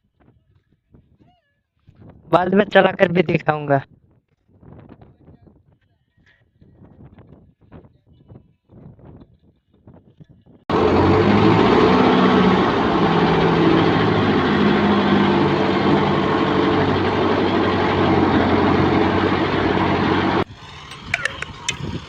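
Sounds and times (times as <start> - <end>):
tractor diesel engine running: 10.7 - 22.0.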